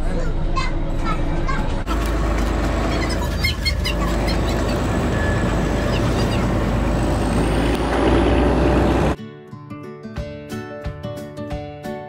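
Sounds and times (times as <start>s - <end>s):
train rumbling: 0.0s - 9.2s.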